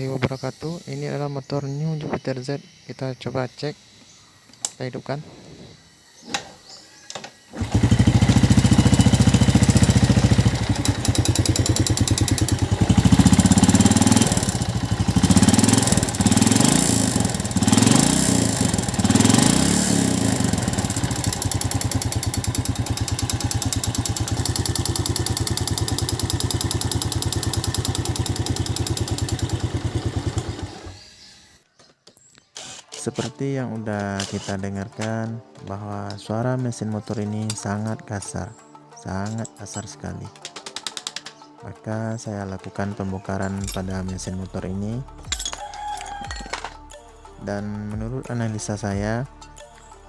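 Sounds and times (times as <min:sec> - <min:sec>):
rough motorcycle engine revving: 0:07.5 - 0:31.2.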